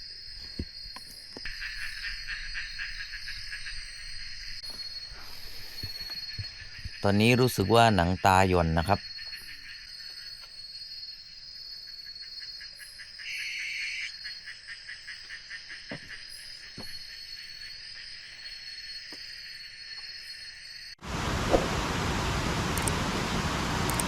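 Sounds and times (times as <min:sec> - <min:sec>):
insects trilling: 0:00.0 - 0:21.4
insect buzzing call: 0:09.0 - 0:21.8
heavy rain downpour: 0:21.0 - 0:24.0
faint clicks: 0:22.7 - 0:23.0.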